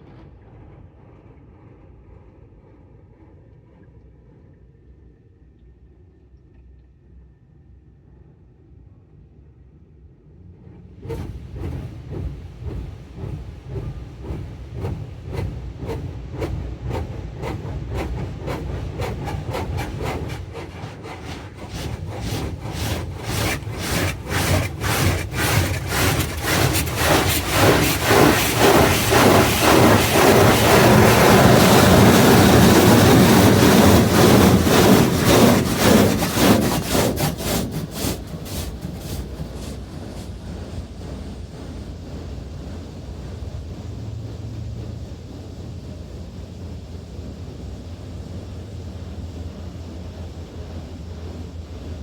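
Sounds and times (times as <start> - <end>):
car wash beating on vehicle: 11.1 - 40.2.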